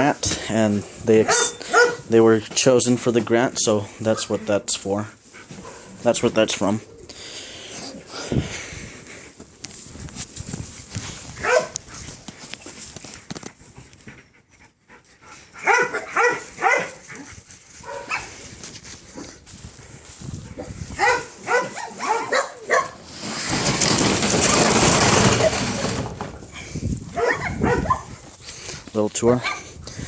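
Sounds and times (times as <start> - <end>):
dogs barking: 1.2 - 2.1, 5.5 - 6.1, 11.4 - 11.8, 15.6 - 18.4, 20.6 - 23.0, 27.1 - 28.2, 29.4 - 29.7.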